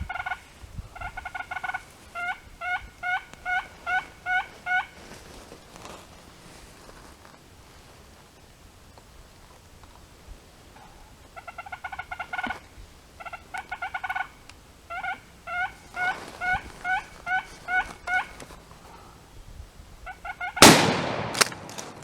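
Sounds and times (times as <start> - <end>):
turkeys gobbling: 0.0 - 5.4, 10.8 - 19.1, 20.0 - 20.8
turkey yelps: 0.1 - 0.4, 1.0 - 5.0, 11.4 - 12.6, 13.2 - 18.4, 20.0 - 20.7
shotgun shot echoing: 20.6 - 22.0.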